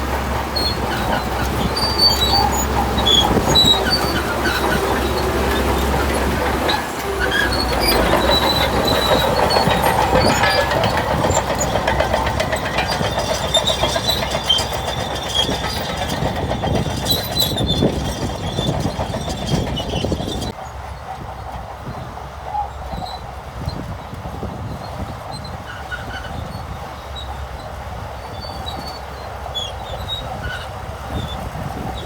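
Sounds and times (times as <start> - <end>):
bulldozer diesel engine running: 0.0 - 32.0
steel tracks clanking: 0.0 - 32.0
high squeals: 0.2 - 20.5.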